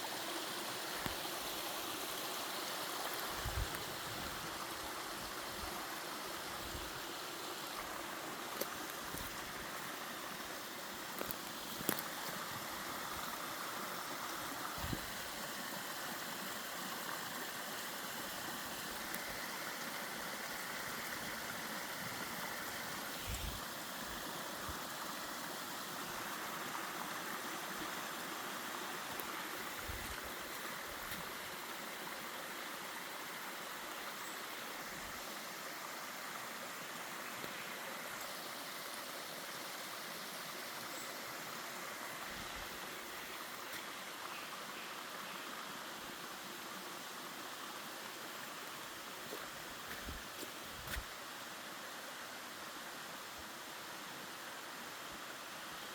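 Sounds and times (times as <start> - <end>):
stream rushing over rocks: 0.0 - 55.9.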